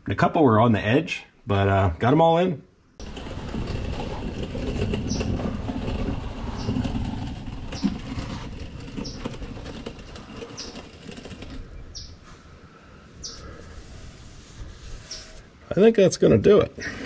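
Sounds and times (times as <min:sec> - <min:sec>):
low steady rumble: 0:03.0 - 0:11.8
bird chirping: 0:04.8 - 0:05.6, 0:06.3 - 0:12.3, 0:13.2 - 0:13.7, 0:15.0 - 0:15.4.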